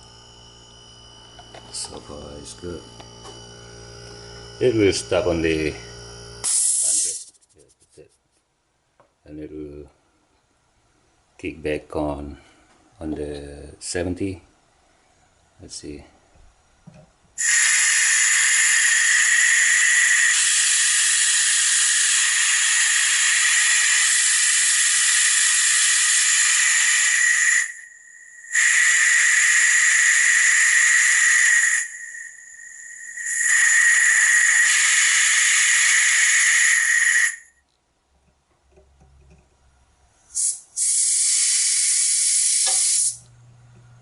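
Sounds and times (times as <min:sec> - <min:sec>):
compressed air hissing: 0:04.6 - 0:07.4, 0:17.4 - 0:37.5, 0:40.2 - 0:43.2.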